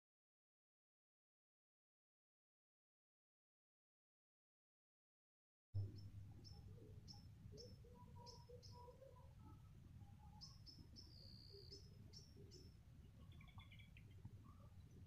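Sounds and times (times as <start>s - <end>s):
bird chirping: 5.8s - 15.0s
faint low rumble: 5.8s - 15.0s
low whistled bird calls: 10.3s - 14.6s.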